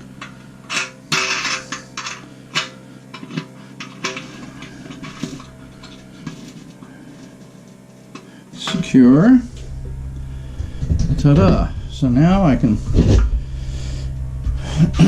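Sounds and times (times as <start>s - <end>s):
metal nut clinking and scraping: 0.2s - 7.6s.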